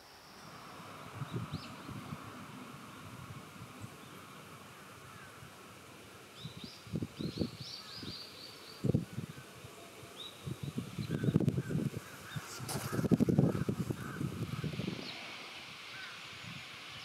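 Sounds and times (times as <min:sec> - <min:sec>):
wind rumbling on microphone: 0:00.0 - 0:17.0
small bird chirping: 0:06.4 - 0:08.9.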